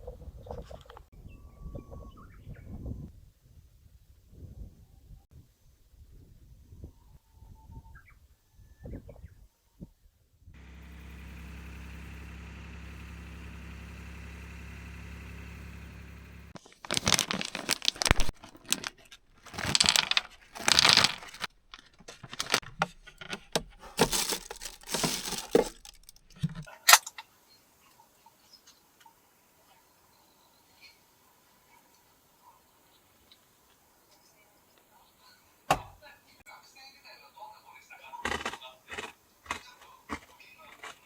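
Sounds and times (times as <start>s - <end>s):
low mechanical hum: 10.6s - 26.6s
rustling and crinkling handling: 15.6s - 26.7s.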